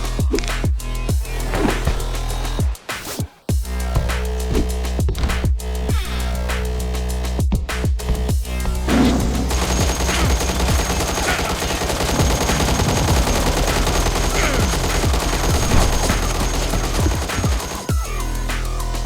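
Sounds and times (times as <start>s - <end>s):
rapid gunfire: 8.9s - 18.0s.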